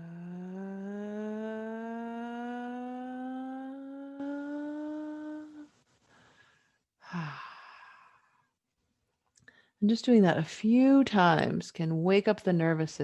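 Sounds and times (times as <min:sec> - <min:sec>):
woman's rising vocal tone: 0:00.0 - 0:05.8
breathy sigh: 0:00.0 - 0:08.4.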